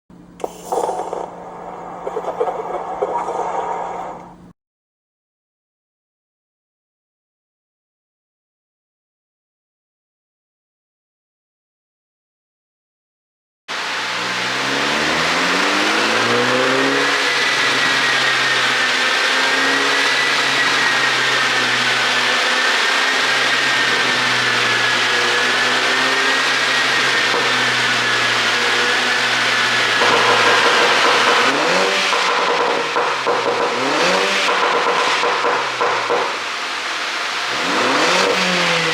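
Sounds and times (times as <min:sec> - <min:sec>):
car engine revving: 0:13.7 - 0:38.9.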